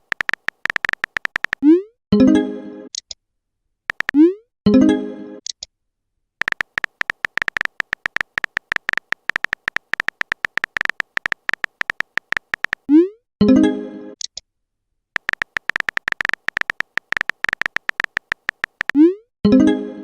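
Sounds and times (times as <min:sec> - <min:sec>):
phone keyboard typing taps: 0:00.0 - 0:01.7, 0:03.9 - 0:04.2, 0:06.4 - 0:12.9, 0:15.2 - 0:19.0.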